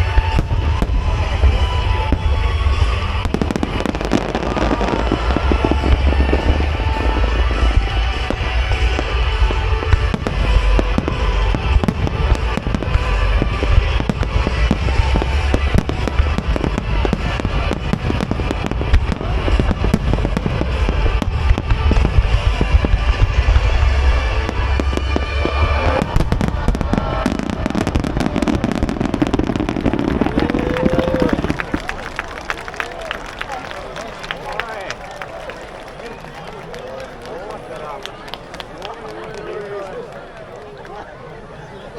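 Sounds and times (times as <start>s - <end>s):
fireworks booming: 0.0s - 32.2s
music: 0.0s - 32.3s
fireworks crackling: 0.0s - 40.9s.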